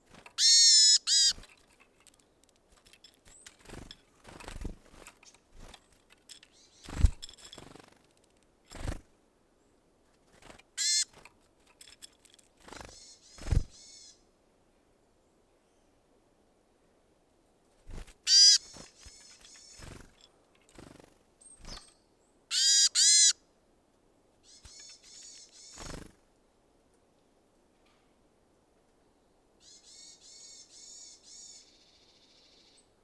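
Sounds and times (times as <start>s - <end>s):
bird harsh calls: 0.4s - 1.4s, 10.8s - 11.2s, 18.3s - 19.8s, 22.5s - 23.4s.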